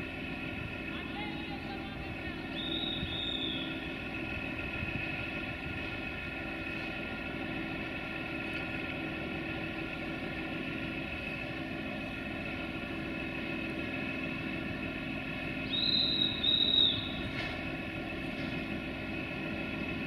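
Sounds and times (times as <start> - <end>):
train humming: 0.0 - 20.0
high-pitched whistle blasts: 2.5 - 3.8, 15.6 - 17.3.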